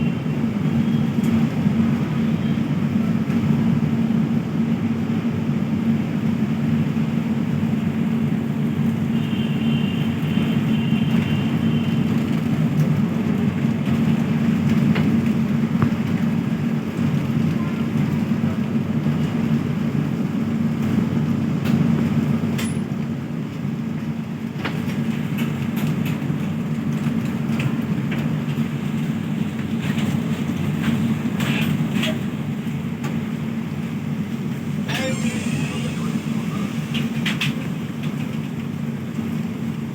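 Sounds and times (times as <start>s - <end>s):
train rumbling on track: 0.0s - 39.9s
faint high squeal: 34.9s - 37.0s.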